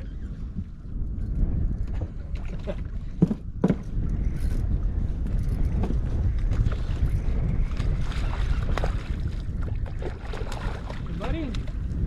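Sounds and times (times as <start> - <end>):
wind buffeting microphone: 0.0 - 12.0
water washing around boat: 6.6 - 11.9.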